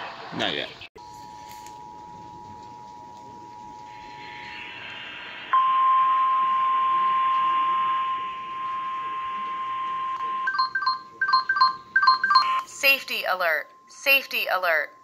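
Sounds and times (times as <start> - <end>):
steady high alert tone: 10.3 - 15.0.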